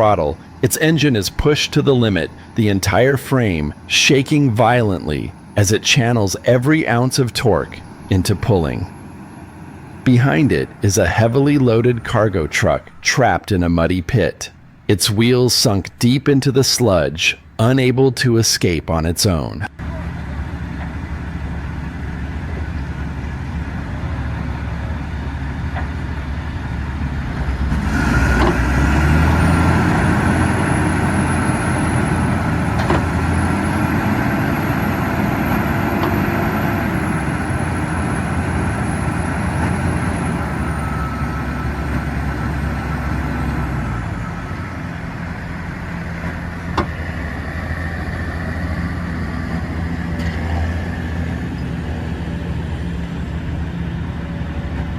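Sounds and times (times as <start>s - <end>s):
high whine: 0.0s - 17.9s
diesel truck engine rumbling: 0.0s - 54.9s.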